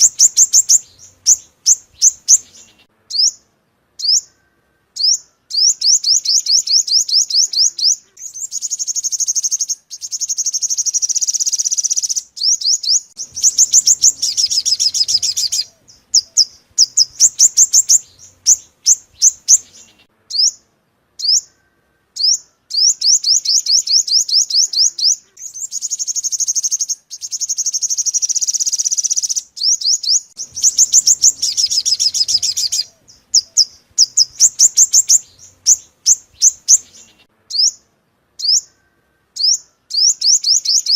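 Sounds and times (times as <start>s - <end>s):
high-pitched bird chirps and trills: 0.0s - 40.9s.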